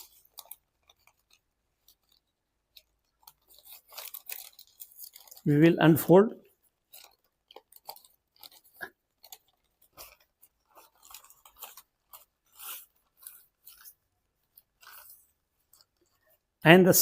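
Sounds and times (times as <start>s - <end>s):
paper rustling and crinkling: 0.0s - 16.6s.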